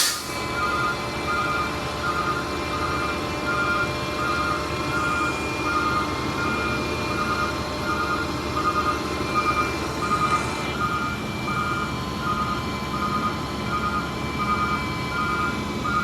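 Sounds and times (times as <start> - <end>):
diesel engine running: 0.0 - 16.0
truck backup alarm beeping: 0.0 - 16.0.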